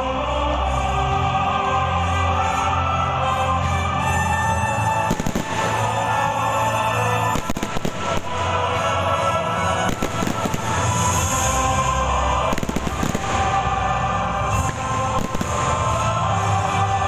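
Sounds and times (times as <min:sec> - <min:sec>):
music: 0:00.0 - 0:17.0
fireworks bangs: 0:05.1 - 0:06.2, 0:07.2 - 0:08.7, 0:09.8 - 0:11.6, 0:12.4 - 0:13.8, 0:14.5 - 0:16.1.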